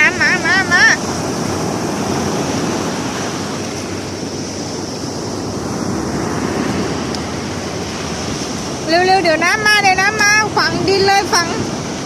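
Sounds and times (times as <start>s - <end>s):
sea waves surf: 0.0s - 12.0s
wind on microphone: 0.0s - 12.0s.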